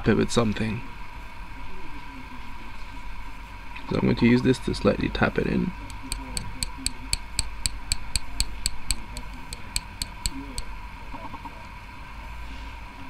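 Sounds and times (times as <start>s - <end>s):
small tool tapping metal: 5.8s - 10.7s.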